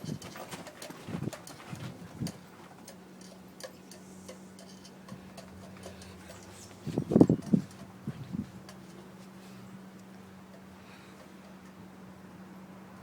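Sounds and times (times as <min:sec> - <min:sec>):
light clicks and ticks: 0:00.0 - 0:07.9
faint steady hum: 0:00.0 - 0:13.0.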